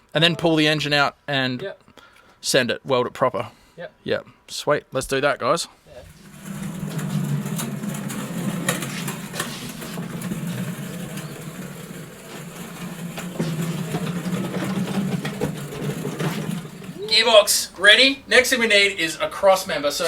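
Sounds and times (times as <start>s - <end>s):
machine humming: 6.2s - 18.3s
clicks and knocks: 6.4s - 17.0s.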